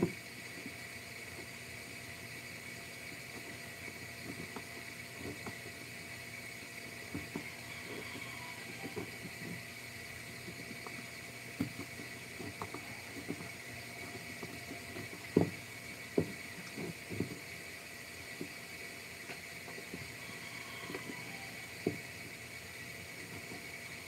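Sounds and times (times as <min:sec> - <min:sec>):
steady high hiss: 0:00.0 - 0:24.0.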